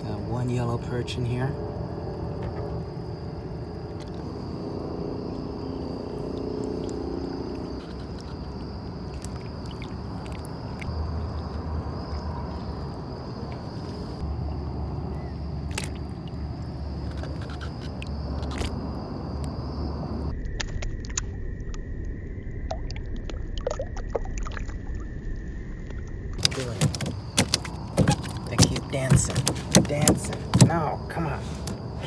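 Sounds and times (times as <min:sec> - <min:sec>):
night insects trilling: 0:00.0 - 0:22.7, 0:25.0 - 0:32.0
clicks and knocks in a canoe: 0:06.3 - 0:12.8, 0:15.7 - 0:18.9, 0:26.4 - 0:32.0.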